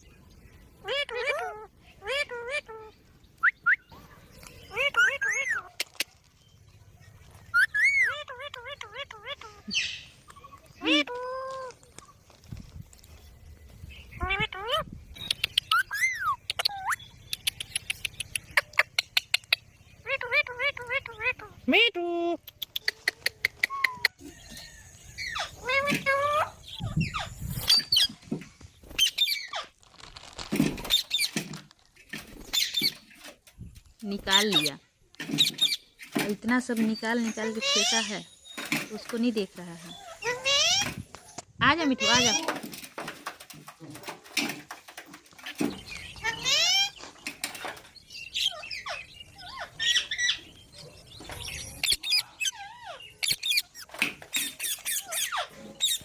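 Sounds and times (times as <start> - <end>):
parrot chirping and squawking: 0.8 - 3.0, 4.7 - 6.1, 7.5 - 11.8, 14.1 - 21.6, 25.1 - 28.2, 28.9 - 29.8, 32.5 - 33.2, 34.2 - 36.1, 37.0 - 38.3, 39.9 - 42.5, 45.4 - 47.1, 48.0 - 56.0.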